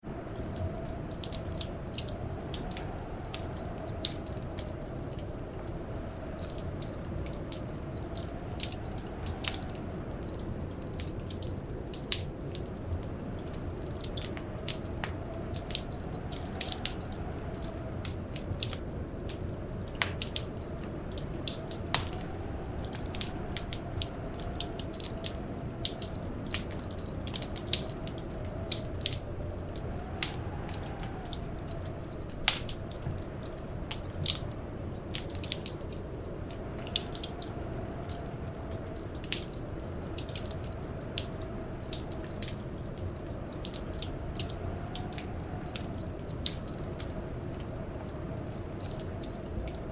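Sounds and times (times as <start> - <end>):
faint wind howl: 0.0 - 49.9
wood fire crackling: 0.0 - 49.9.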